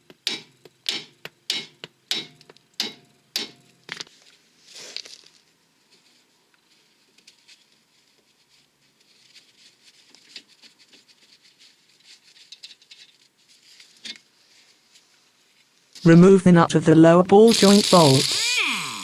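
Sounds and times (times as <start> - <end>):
hand tools tapping on metal: 0.0 - 3.6.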